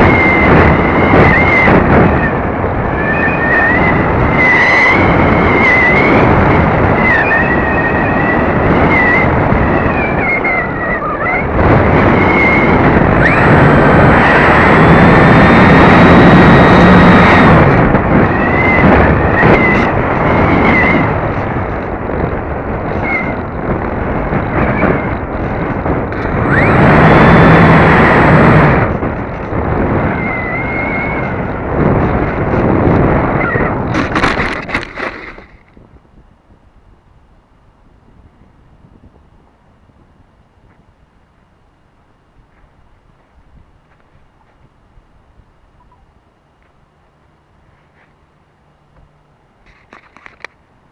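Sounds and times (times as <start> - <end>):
electric motor whining: 0.0 - 35.3
wind rush on microphone: 0.0 - 50.9.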